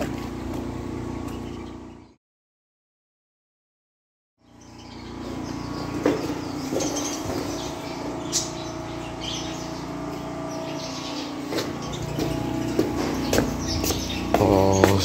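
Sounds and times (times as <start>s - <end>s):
birds chirping: 0.0s - 2.2s, 4.4s - 15.0s
steady low hum: 4.4s - 15.0s.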